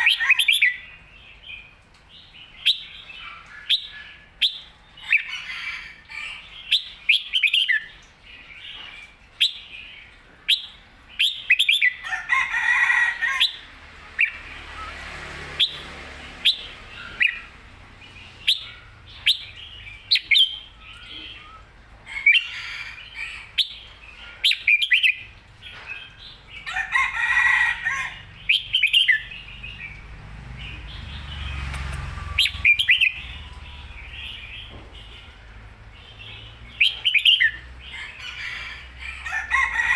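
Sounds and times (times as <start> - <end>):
bird chirping and warbling: 0.0 - 39.9.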